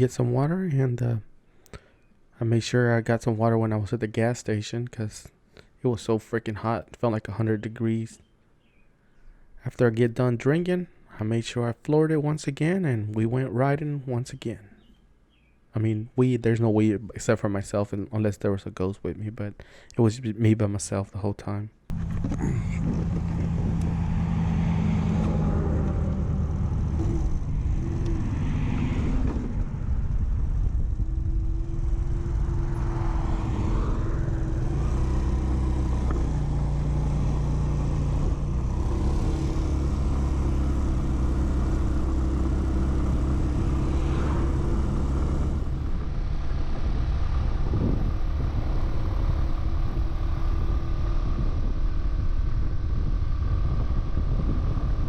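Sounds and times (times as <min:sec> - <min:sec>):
scooter engine running: 0:21.9 - 0:28.4, 0:29.1 - 0:55.0
wind noise: 0:21.9 - 0:36.4, 0:43.4 - 0:55.0.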